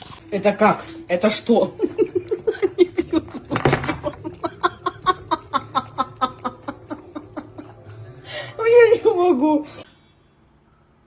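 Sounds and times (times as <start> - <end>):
person laughing hard: 1.8 - 7.8.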